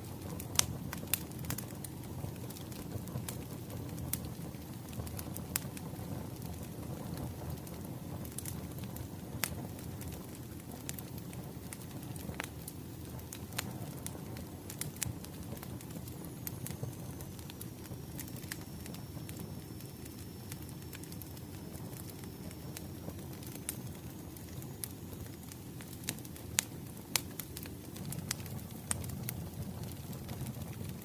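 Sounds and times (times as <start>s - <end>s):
flames rumbling: 0.0s - 31.0s
firewood popping and snapping: 9.4s - 19.4s, 20.0s - 31.0s.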